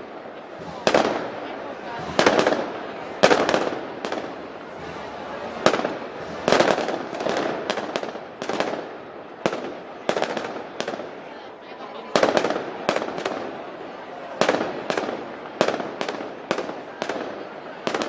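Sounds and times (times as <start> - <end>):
loud gunpowder bangs: 0.6 - 11.1.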